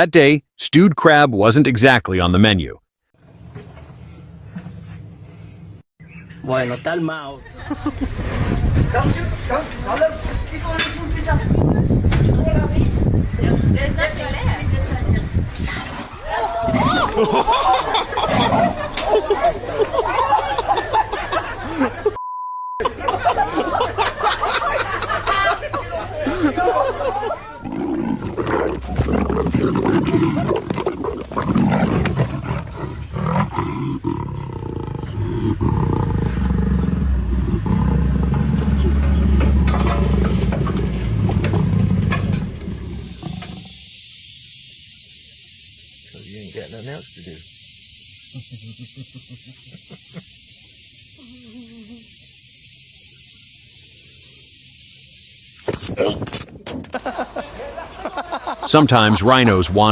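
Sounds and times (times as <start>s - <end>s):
large animal roaring: 27.6s - 43.8s
steady high hiss: 41.7s - 55.7s.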